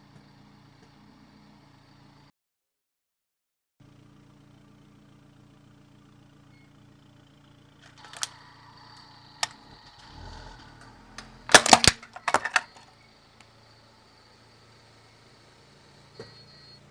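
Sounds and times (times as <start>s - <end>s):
toy car cracking under tyre: 7.9s - 8.3s, 11.2s - 12.8s.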